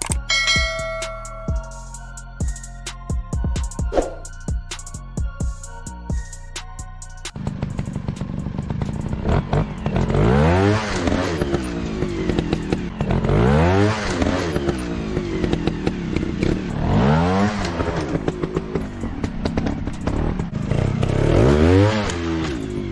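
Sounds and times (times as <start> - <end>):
dirt bike engine revving: 7.4 - 22.9.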